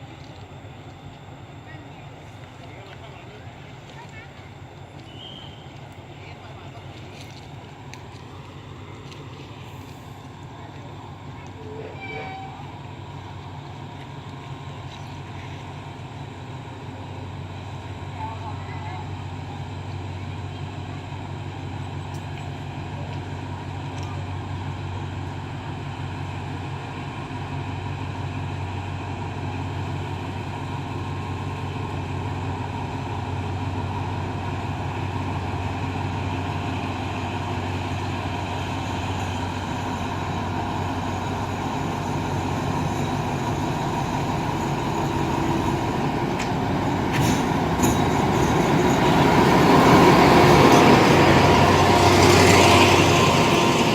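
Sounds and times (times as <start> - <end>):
diesel train engine drone: 0.0 - 53.9.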